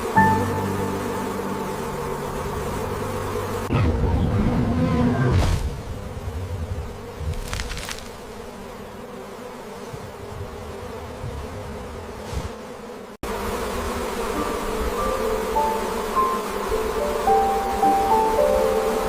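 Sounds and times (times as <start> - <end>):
music with held notes: 0.0 - 3.6
bees buzzing: 0.0 - 19.0.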